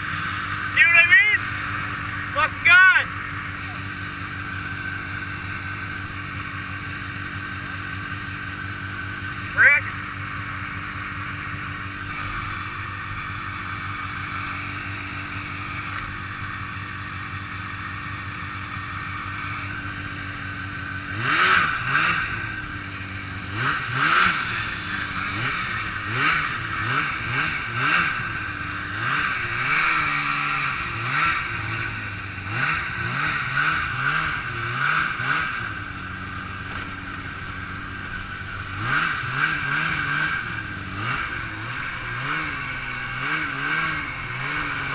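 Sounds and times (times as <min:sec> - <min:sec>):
snowmobile engine revving: 0:00.0 - 0:44.9.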